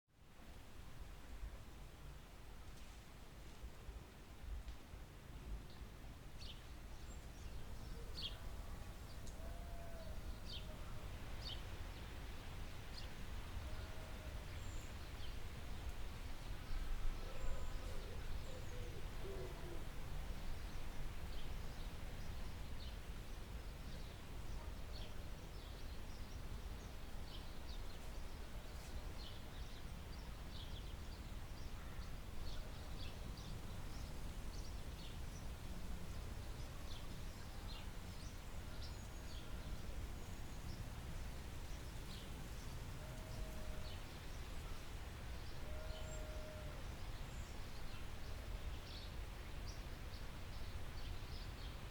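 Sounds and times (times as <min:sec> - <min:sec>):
low bird calls: 0:45.6 - 0:46.8.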